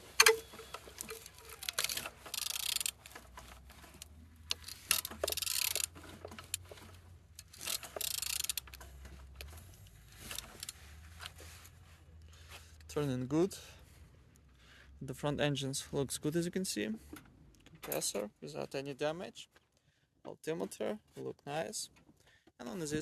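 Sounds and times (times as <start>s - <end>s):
engine parts rattling and clicking: 0.0s - 15.2s, 15.8s - 18.4s.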